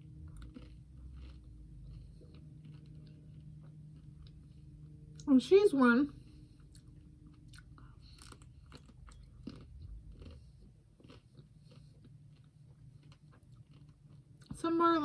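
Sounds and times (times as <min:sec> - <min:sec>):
chewing ice cream bar: 0:00.0 - 0:05.3, 0:06.2 - 0:14.8
chocolate coating crunching: 0:00.0 - 0:05.3, 0:06.6 - 0:14.6.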